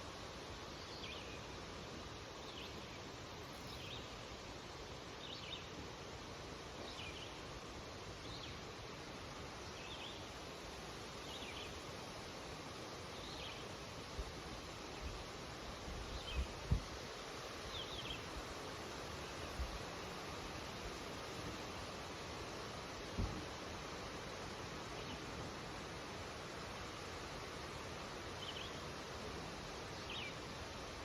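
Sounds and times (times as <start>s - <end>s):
wind rustling through leaves: 0.0s - 31.0s.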